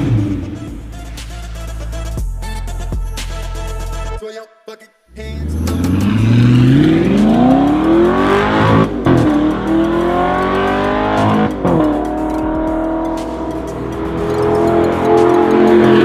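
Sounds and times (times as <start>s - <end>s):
car engine accelerating hard: 0.0s - 1.0s, 5.2s - 16.0s.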